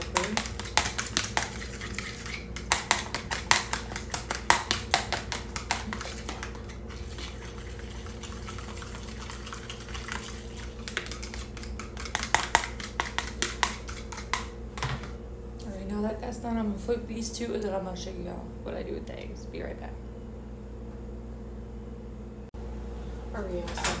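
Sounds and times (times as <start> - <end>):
whisk clicking against bowl: 0.0 - 14.9.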